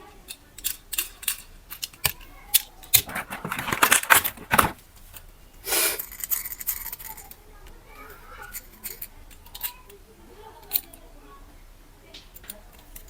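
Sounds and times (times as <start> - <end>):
crinkly rustling: 2.9 - 5.2.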